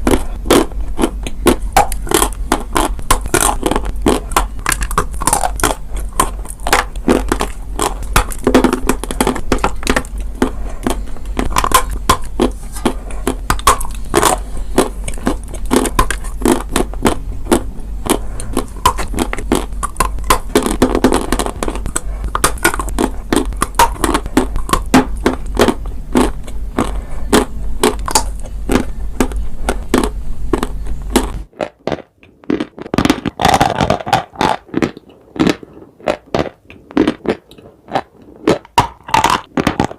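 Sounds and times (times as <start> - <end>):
low hum: 0.0 - 31.6
chalk crunching when chewed: 0.0 - 39.9.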